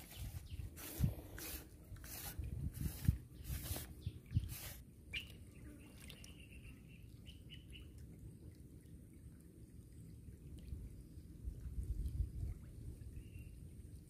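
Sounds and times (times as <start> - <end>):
faint outdoor background: 0.0 - 14.0.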